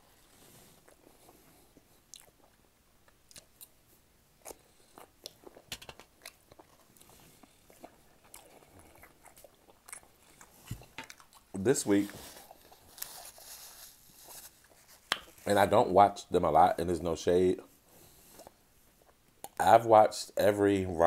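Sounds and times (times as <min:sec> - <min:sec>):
chewing food: 0:00.8 - 0:03.8, 0:04.4 - 0:11.6, 0:18.0 - 0:19.6.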